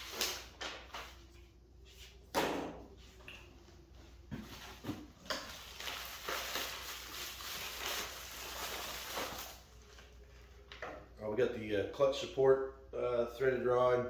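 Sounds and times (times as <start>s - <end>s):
packaging rustling: 4.6s - 10.2s.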